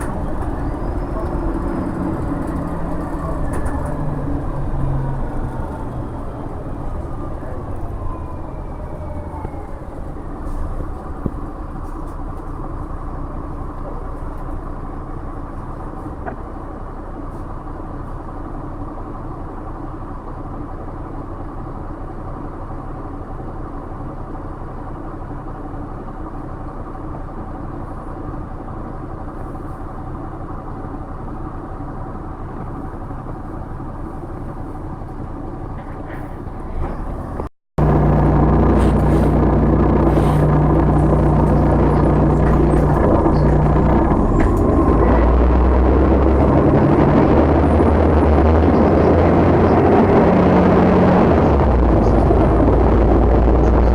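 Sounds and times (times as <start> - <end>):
falling whine: 0.0 - 13.2, 36.9 - 53.9
bus diesel engine running: 0.0 - 53.9
low road rumble: 0.0 - 53.9.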